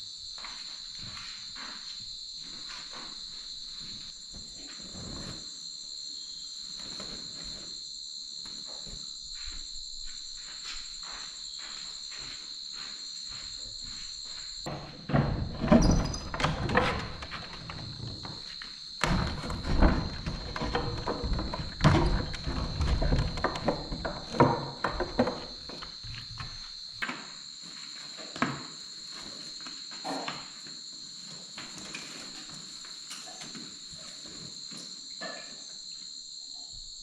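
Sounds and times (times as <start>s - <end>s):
crickets chirring: 0.0s - 37.0s
loud irregular knocks and clattering: 14.7s - 26.6s.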